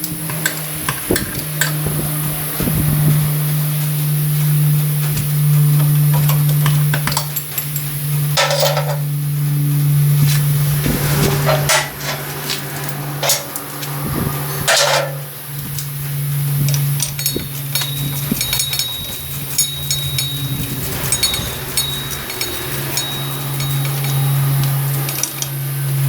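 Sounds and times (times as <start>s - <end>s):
steady low hum: 0.0s - 26.0s
metal hand tools clinking: 5.9s - 9.2s, 11.4s - 26.0s
ratchet wrench clicking: 11.7s - 26.0s.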